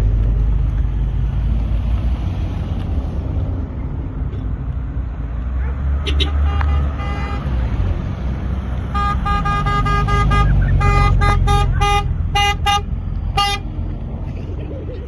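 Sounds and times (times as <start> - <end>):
car horn beeping: 6.0 - 7.6, 8.9 - 13.7
low engine rumble: 7.6 - 15.0.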